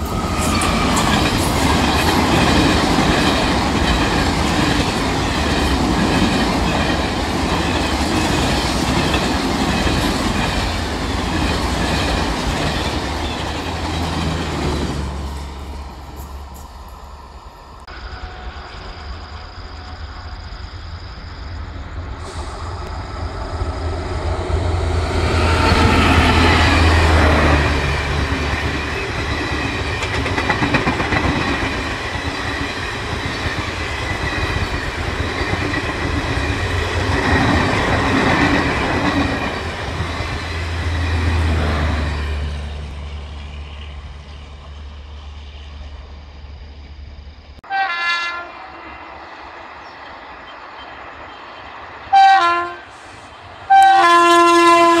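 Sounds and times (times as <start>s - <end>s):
train rushing past: 0.0s - 55.0s
locomotive horn blasts: 47.6s - 48.8s, 52.1s - 53.0s, 53.7s - 55.0s.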